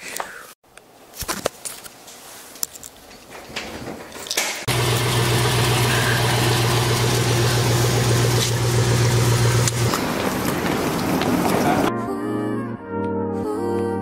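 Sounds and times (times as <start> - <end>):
car engine running: 4.7 - 11.9
road noise: 4.7 - 11.9.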